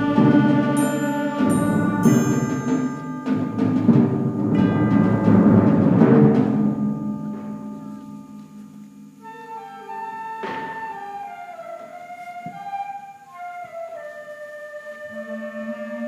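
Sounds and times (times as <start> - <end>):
timpani strikes: 0.0 - 9.3
concert band playing: 0.0 - 11.0
quiet woodwind line: 7.8 - 16.0.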